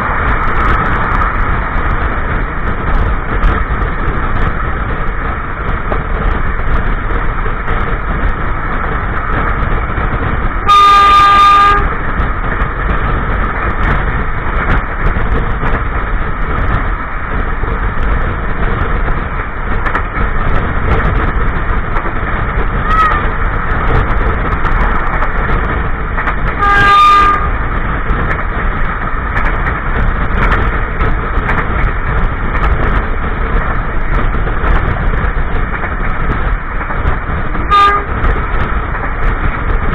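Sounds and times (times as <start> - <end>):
train wheels rumbling on track: 0.0 - 39.9
locomotive horn blast: 10.6 - 12.0, 26.6 - 27.6, 37.6 - 38.2.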